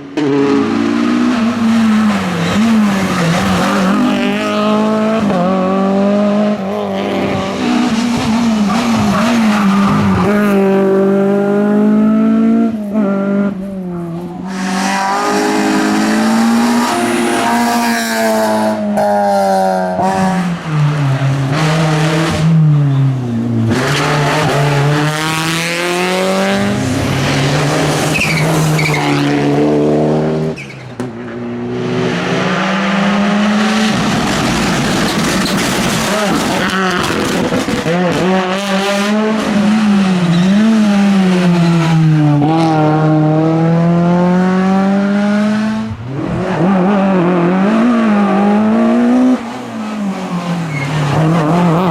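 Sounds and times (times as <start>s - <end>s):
rally car engines revving: 0.0s - 51.9s
tyres squealing: 28.1s - 29.1s.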